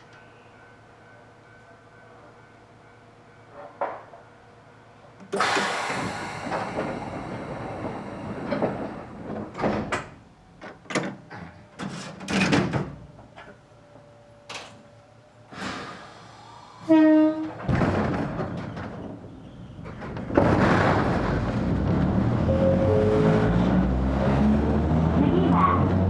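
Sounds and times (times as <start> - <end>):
train door hiss: 5.2 - 10.1, 15.4 - 17.7
door knocks and clatters: 8.5 - 13.0, 17.5 - 19.2.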